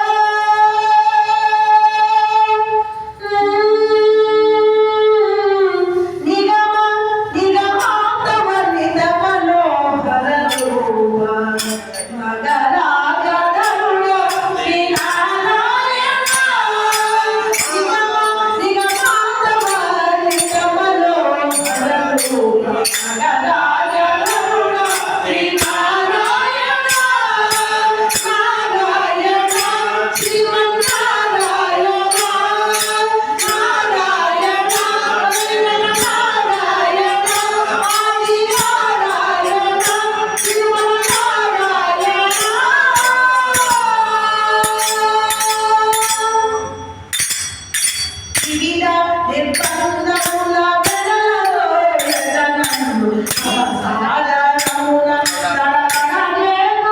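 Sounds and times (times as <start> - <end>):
tambourine jingles: 10.5 - 10.9, 11.6 - 12.2, 13.6 - 23.5, 24.2 - 48.9, 49.5 - 56.4.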